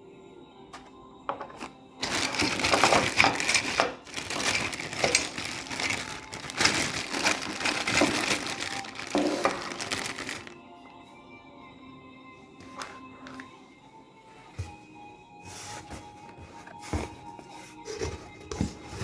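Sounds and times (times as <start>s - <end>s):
material crinkling and rustling: 1.4s - 10.6s.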